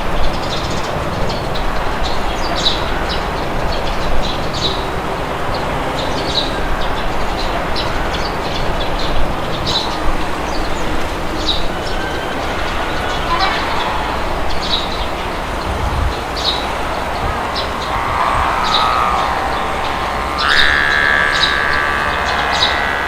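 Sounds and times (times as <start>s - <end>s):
small birds chirping: 0.0s - 23.0s
wind noise: 0.0s - 23.0s.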